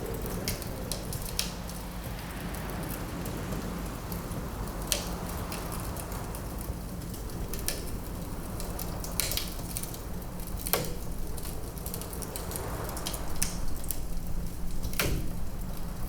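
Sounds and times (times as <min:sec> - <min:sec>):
wood fire crackling: 0:00.0 - 0:16.0
logs popping: 0:08.7 - 0:16.0.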